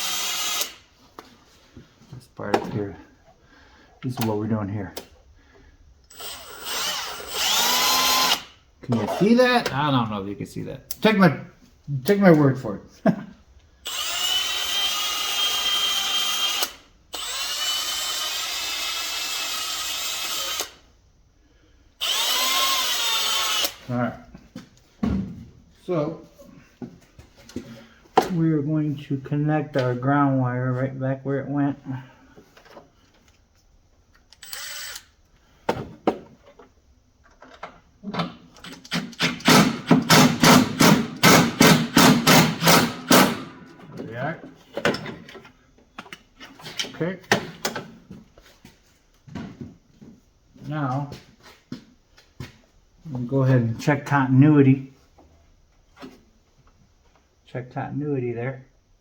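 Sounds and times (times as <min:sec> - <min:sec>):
power drill whining on metal: 0:00.0 - 0:00.9, 0:06.1 - 0:09.4, 0:13.8 - 0:20.8, 0:22.0 - 0:23.9, 0:34.4 - 0:35.2, 0:38.9 - 0:43.6.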